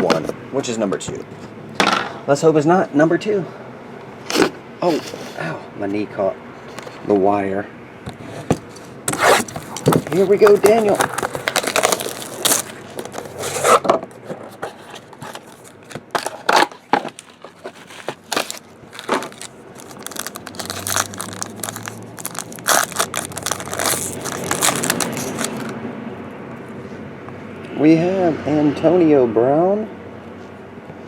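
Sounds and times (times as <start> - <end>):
sharp rustling of wrapping: 8.5 - 13.8, 14.6 - 25.7
packaging tearing and crumpling: 9.1 - 13.8, 14.8 - 25.7.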